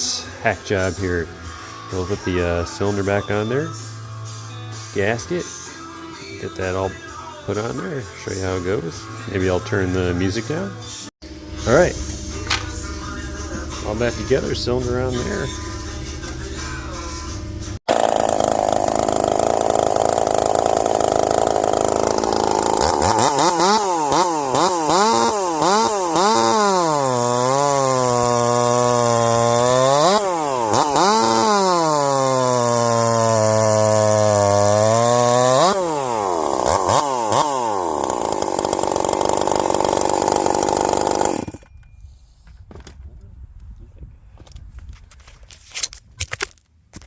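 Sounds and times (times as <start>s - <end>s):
chainsaw engine revving: 17.7s - 41.7s.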